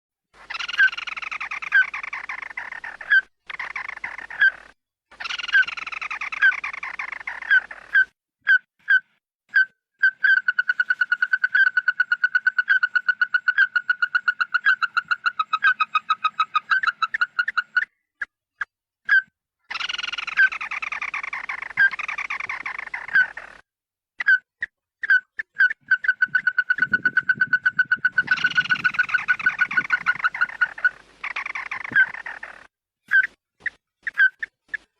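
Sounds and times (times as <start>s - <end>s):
bird calling harshly: 0.4s - 18.0s, 19.1s - 23.6s, 24.2s - 34.9s
sharp repeated bird notes: 0.4s - 18.3s, 19.1s - 23.6s, 24.2s - 34.9s.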